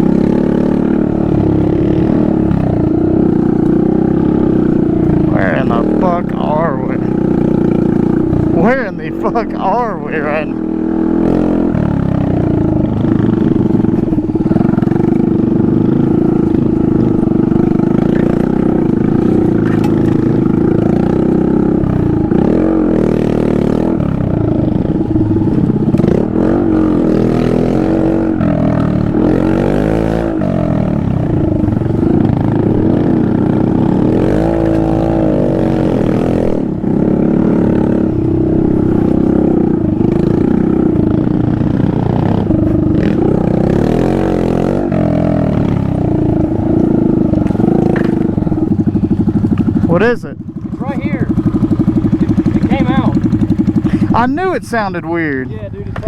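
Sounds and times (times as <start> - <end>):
small engine revving: 0.0 - 48.8, 50.8 - 56.0
clatter: 12.8 - 21.0.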